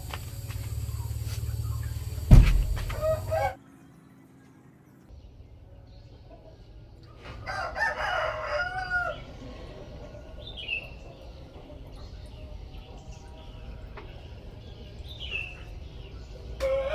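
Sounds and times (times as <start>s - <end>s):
low steady hum: 0.0s - 7.3s
rooster crowing: 2.8s - 3.6s, 7.4s - 9.4s, 16.6s - 16.9s.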